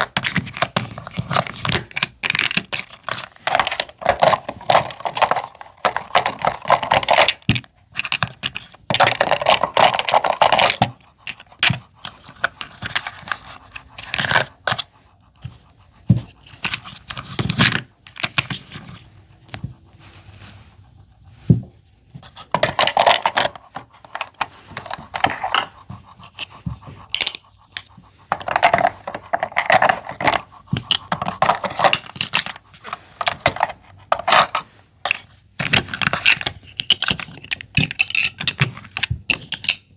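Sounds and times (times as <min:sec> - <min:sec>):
rustling and scraping: 0:00.0 - 0:39.9
plastic pieces clicking: 0:35.6 - 0:39.9.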